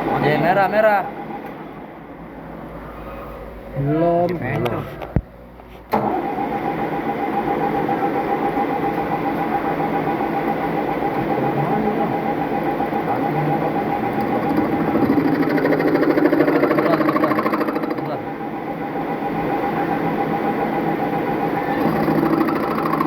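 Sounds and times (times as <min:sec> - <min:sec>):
metal lathe motor whine: 0:06.0 - 0:23.0.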